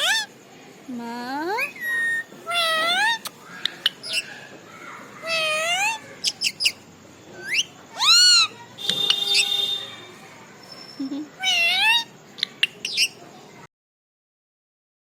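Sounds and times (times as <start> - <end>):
parrot sharp chirps: 0.0 - 0.3, 1.6 - 4.4, 5.2 - 6.8, 7.4 - 10.0, 10.6 - 13.2
parrot whistled calls: 1.6 - 4.4, 5.2 - 6.8, 7.4 - 9.9, 10.7 - 13.2.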